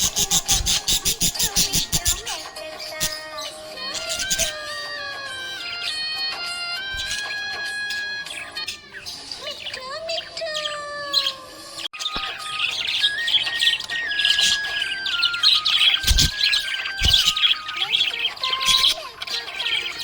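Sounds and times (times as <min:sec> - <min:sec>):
budgerigars chirping: 0:00.0 - 0:04.8, 0:06.7 - 0:20.0.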